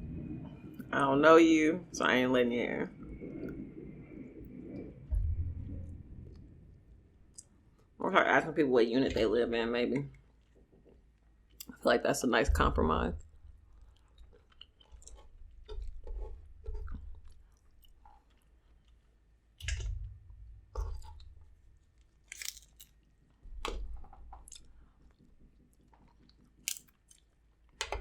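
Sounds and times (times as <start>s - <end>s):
chewing and biting food: 13.7s - 19.2s, 20.9s - 23.0s.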